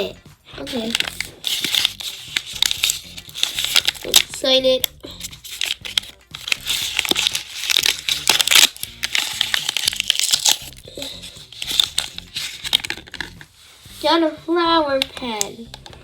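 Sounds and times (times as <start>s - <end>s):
background music: 0.0s - 16.0s
crinkly bag being torn open: 0.7s - 4.4s, 5.2s - 13.4s.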